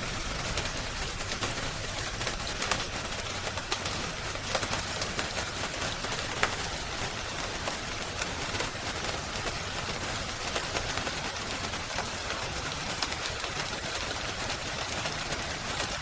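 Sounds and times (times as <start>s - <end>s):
steady rain hiss: 0.0s - 16.0s
wood fire crackling: 0.0s - 16.0s.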